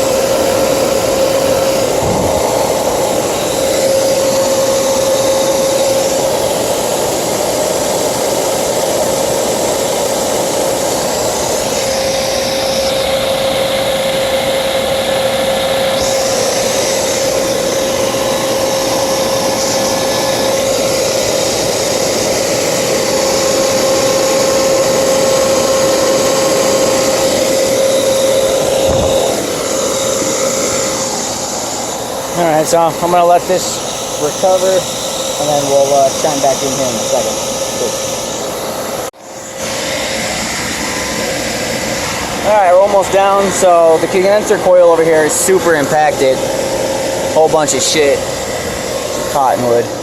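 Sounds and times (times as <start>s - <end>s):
refrigerant rushing: 0.0s - 39.1s
machine humming: 0.0s - 50.0s.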